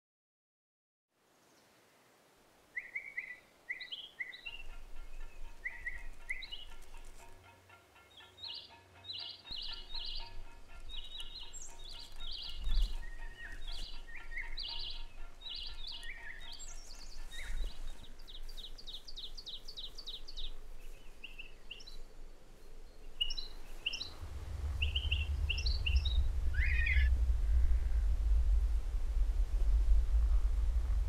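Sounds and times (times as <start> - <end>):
songbirds chirping: 1.2 - 28.0
deep low rumble: 23.7 - 31.0.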